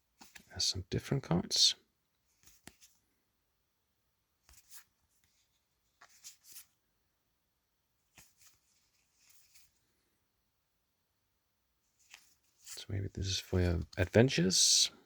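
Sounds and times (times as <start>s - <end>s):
cards rustling and clicking: 0.1s - 0.5s, 2.3s - 3.1s, 4.5s - 6.8s, 8.0s - 9.9s, 12.0s - 14.6s.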